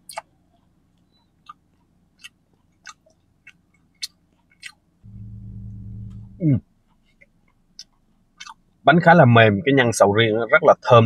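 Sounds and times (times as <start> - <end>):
man chewing with wet clicks: 0.0 - 5.0, 6.8 - 8.8
steady low hum: 0.0 - 9.7.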